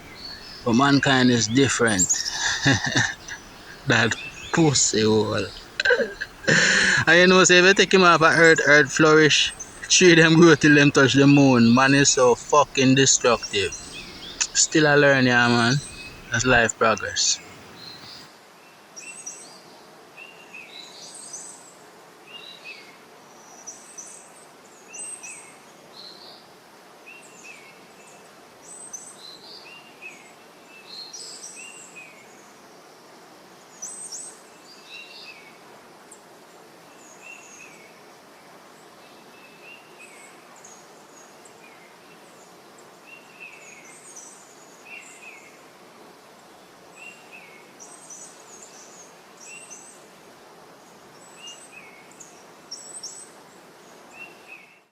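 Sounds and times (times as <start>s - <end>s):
birds chirping: 0.0s - 18.3s
faint outdoor hiss: 0.0s - 54.9s.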